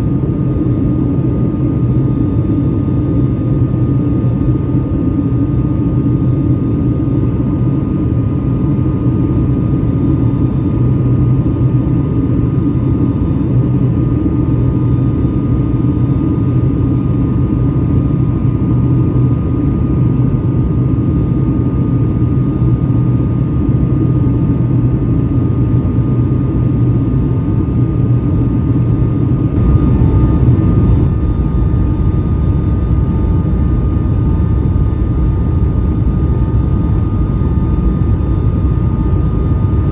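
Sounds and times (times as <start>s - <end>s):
jet engine roar in cabin: 0.0s - 39.9s
faint steady whine: 21.1s - 39.9s.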